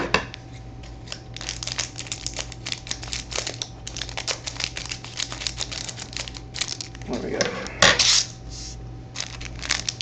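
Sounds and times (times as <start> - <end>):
wrapper being torn and crinkled: 1.0 - 7.4, 9.1 - 10.0.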